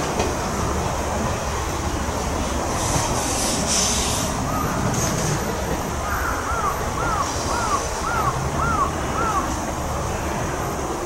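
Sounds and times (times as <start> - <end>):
high hiss: 2.7 - 5.3
bird calling: 4.5 - 5.1, 6.0 - 9.5.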